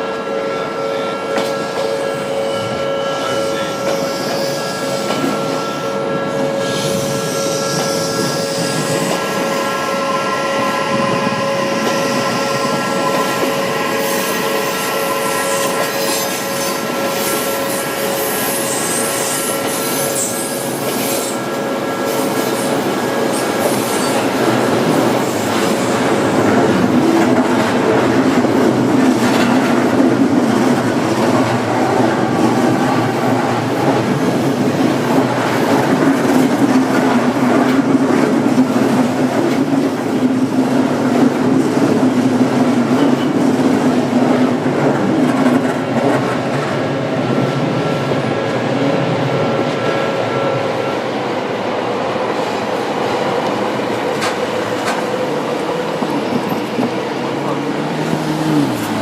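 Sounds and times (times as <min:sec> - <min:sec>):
train wheels rumbling and clattering: 0:01.2 - 0:59.0
high wheel squeal: 0:02.0 - 0:21.4.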